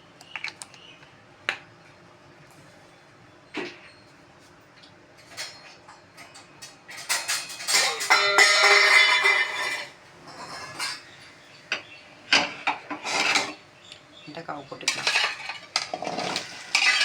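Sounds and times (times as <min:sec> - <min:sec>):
metal utensils clattering: 0:05.2 - 0:13.6, 0:14.6 - 0:17.0.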